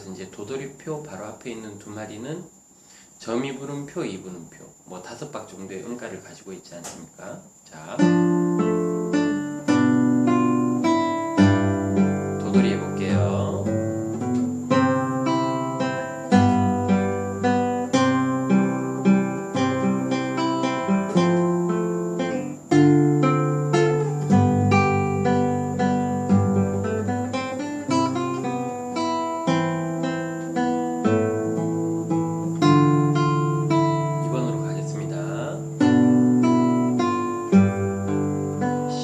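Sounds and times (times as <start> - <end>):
fingerstyle classical guitar: 7.8 - 39.0.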